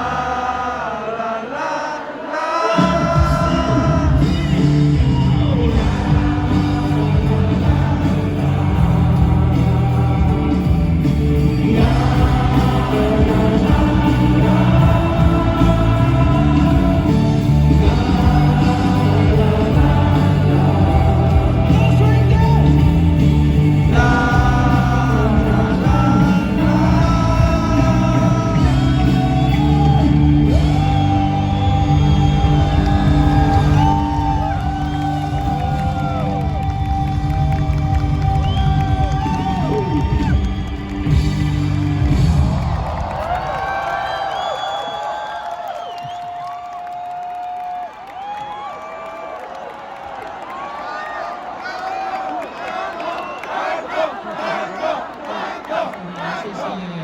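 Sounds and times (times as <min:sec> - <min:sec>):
person singing: 0:00.0 - 0:04.8, 0:05.4 - 0:40.2
rock band playing live: 0:02.7 - 0:43.5.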